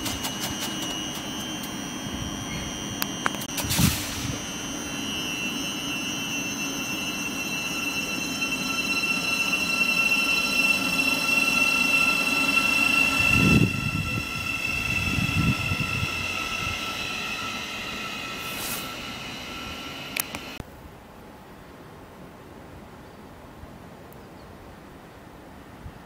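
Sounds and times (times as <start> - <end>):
train motor whine: 0.0 - 20.6
train wheels rumbling: 0.0 - 20.6
heavy low rumbling: 11.8 - 20.6.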